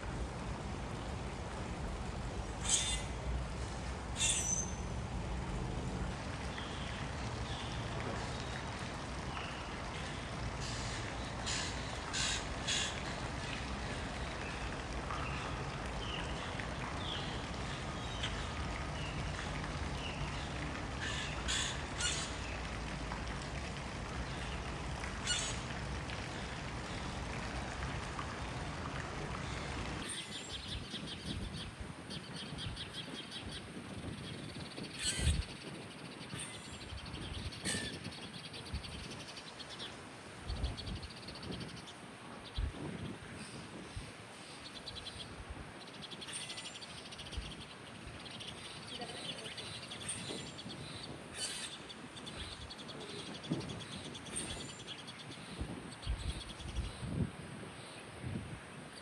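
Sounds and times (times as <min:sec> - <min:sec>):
wild birds chirping: 0:09.3 - 0:22.9, 0:24.2 - 0:25.7, 0:44.4 - 0:58.1.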